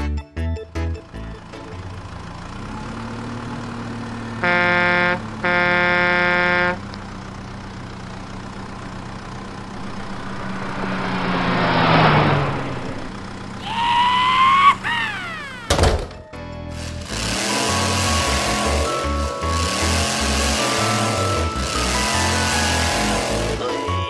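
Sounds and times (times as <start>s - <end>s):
truck engine running: 0.8s - 13.9s
truck passing by: 1.0s - 15.8s, 16.7s - 24.0s
truck horn blasts: 4.3s - 6.9s
engine revving: 9.6s - 13.9s, 16.8s - 23.7s.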